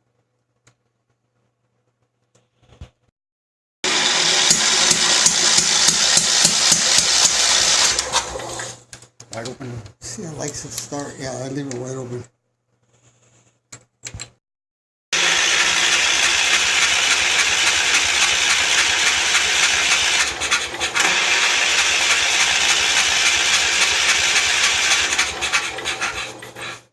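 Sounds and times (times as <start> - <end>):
tractor engine cranking on starter: 4.2 - 8.8, 15.2 - 26.9.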